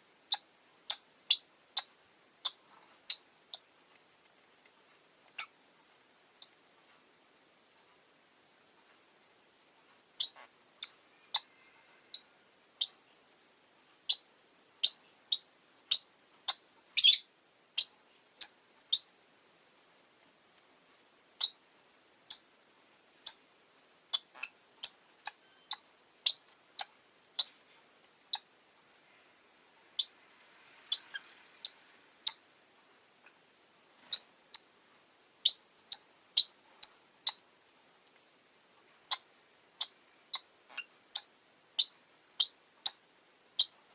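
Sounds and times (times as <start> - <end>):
birds chirping: 14.8 - 19.1.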